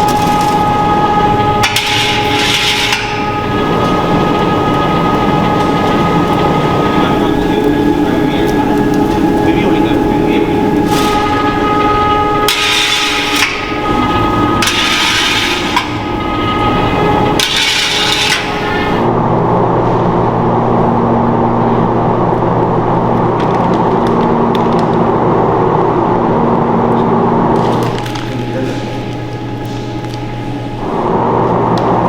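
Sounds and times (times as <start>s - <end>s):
machine rasping hiss: 0.0s - 19.1s
steady machine hum: 0.0s - 32.0s.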